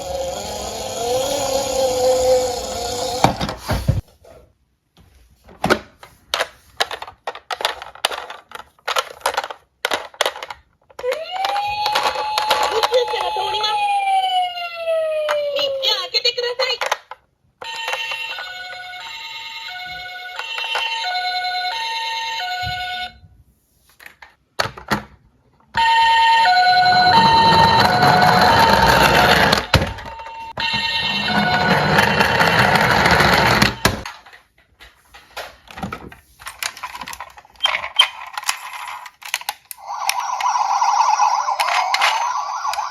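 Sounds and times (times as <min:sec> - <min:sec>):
toy cars clattering: 0:00.0 - 0:03.7, 0:06.3 - 0:13.7, 0:16.6 - 0:21.9, 0:25.8 - 0:42.9
siren rising in pitch: 0:26.3 - 0:29.8, 0:39.8 - 0:42.9.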